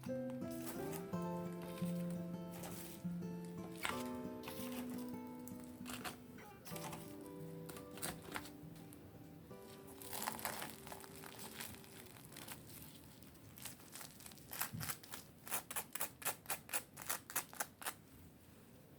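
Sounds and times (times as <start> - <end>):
background music: 0.0 - 12.6
crinkling handling noise: 0.0 - 15.9.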